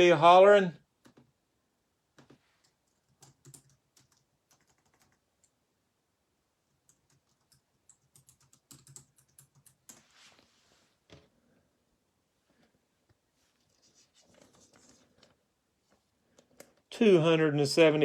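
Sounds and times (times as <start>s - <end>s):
faint computer keyboard typing: 2.2s - 5.6s, 6.7s - 10.1s.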